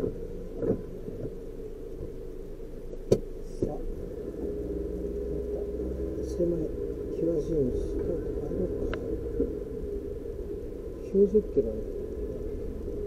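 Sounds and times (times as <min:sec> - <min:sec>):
car engine idling: 0:00.0 - 0:13.0
sharp clicks and knocks: 0:03.0 - 0:03.8.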